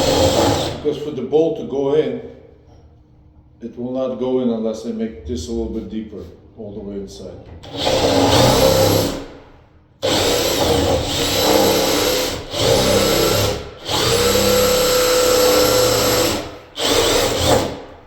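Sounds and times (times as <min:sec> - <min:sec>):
power drill boring into wood: 0:00.0 - 0:00.9, 0:07.6 - 0:09.4, 0:10.0 - 0:18.0.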